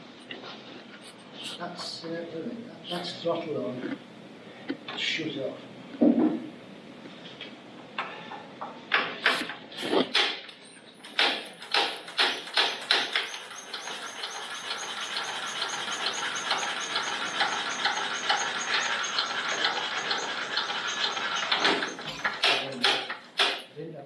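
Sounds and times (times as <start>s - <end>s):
engine being cranked by hand: 11.0s - 23.7s.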